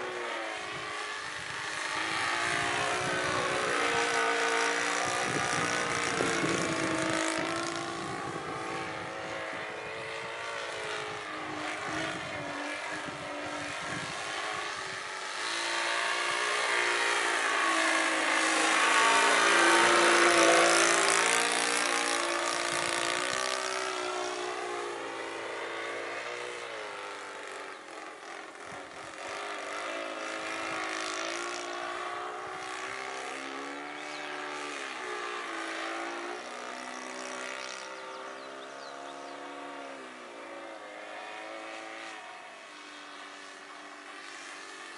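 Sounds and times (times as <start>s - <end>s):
model plane engine in flight: 0.0s - 44.9s.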